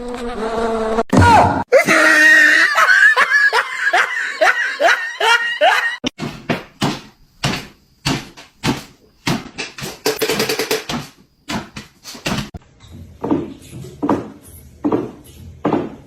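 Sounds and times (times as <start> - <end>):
sharp knocks and bangs: 6.0 - 16.0.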